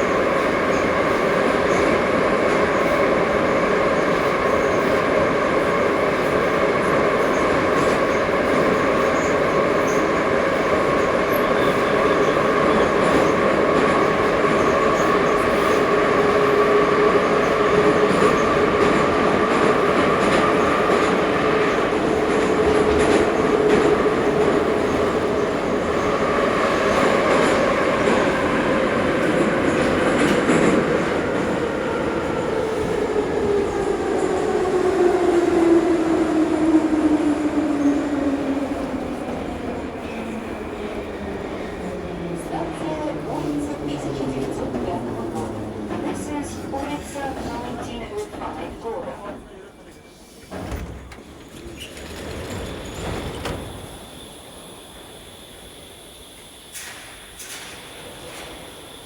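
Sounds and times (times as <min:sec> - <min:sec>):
train wheels rumbling on rail: 0:00.0 - 0:59.0
train whine: 0:50.5 - 0:59.0.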